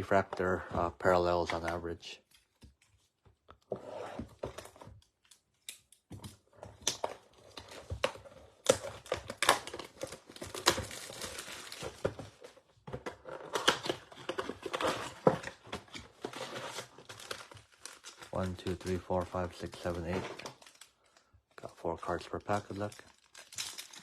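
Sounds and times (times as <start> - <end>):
plastic wrapping crinkling and tearing: 6.8 - 12.6, 13.2 - 24.0.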